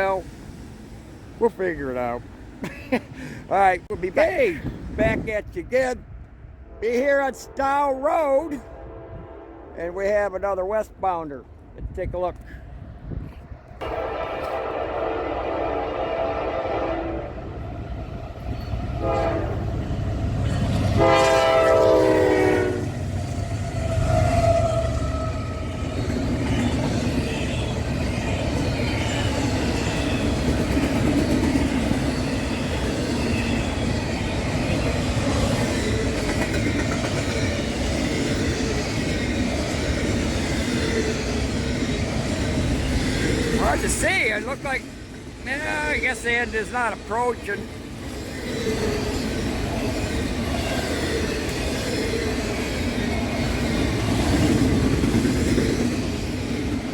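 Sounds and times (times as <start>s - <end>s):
train horn blasts: 8.6s - 9.8s, 13.8s - 17.5s, 19.0s - 19.7s, 20.9s - 23.0s
train wheels rumbling on rails: 12.1s - 56.9s.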